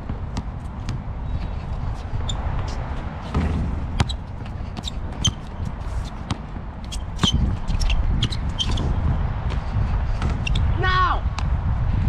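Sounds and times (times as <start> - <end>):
shoe squeaks: 1.3 - 9.0, 10.3 - 10.7
basketball bouncing on hard court: 3.3 - 10.6.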